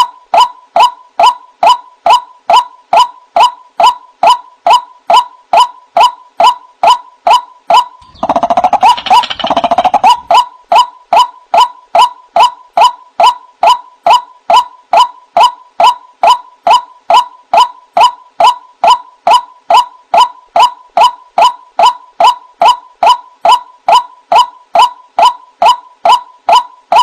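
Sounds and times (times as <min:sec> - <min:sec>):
fast overlapping bird calls: 0:07.7 - 0:18.5
waterhen calls from a recording: 0:08.0 - 0:10.5.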